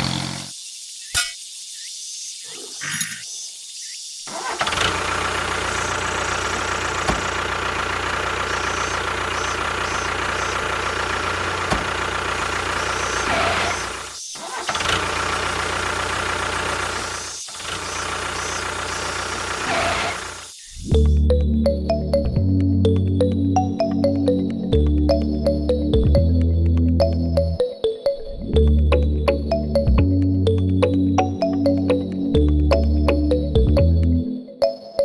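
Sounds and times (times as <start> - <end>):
small engine clattering: 4.3 - 20.6.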